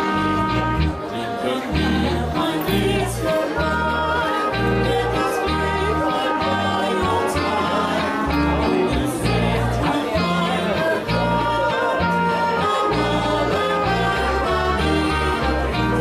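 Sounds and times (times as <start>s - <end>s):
live polka band: 0.0s - 16.0s.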